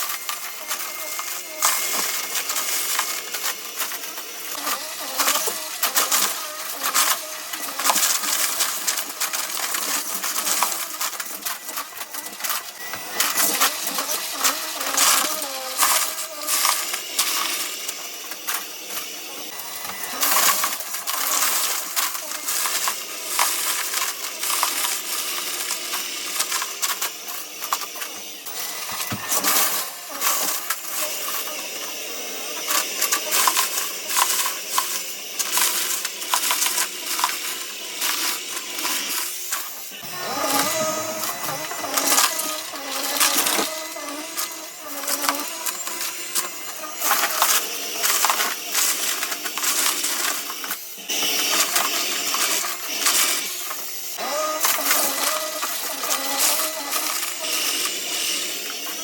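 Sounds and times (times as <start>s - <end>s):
granules rattling in vacuum: 0.0s - 59.0s
vacuum cleaner running: 0.0s - 59.0s.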